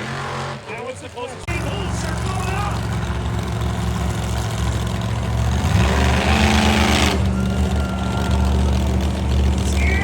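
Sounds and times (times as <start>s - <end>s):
truck engine revving: 0.0s - 10.0s.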